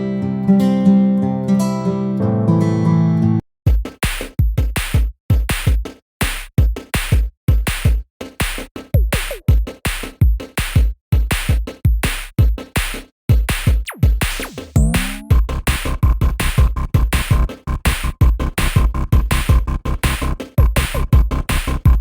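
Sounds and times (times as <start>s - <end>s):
strummed guitar tune: 0.0s - 3.4s
electronic music with drum-machine beat: 3.7s - 22.0s.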